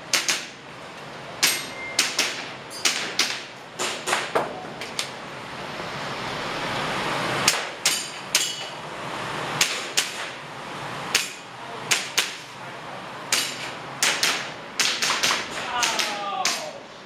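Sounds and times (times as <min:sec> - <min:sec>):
hits ringing off metal targets: 0:01.4 - 0:04.6, 0:07.5 - 0:08.8, 0:11.1 - 0:12.4, 0:13.3 - 0:16.8
airsoft pistol shots: 0:13.3 - 0:16.7.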